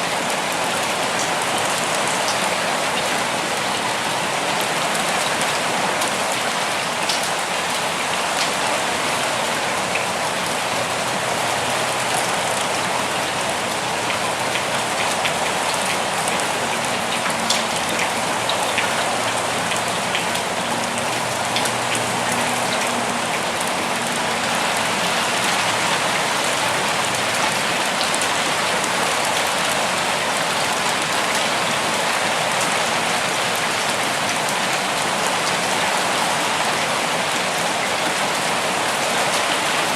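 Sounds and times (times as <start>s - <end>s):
rain on leaves and ground: 0.0s - 39.9s
raindrops ticking: 13.7s - 29.8s.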